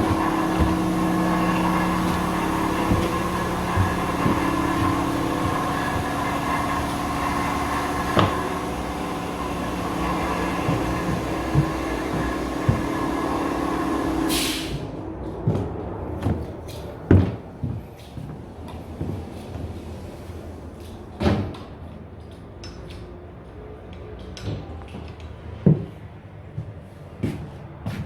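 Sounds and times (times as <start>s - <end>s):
knocks and thuds: 0.0s - 13.5s
steady mechanical hum: 0.0s - 28.0s.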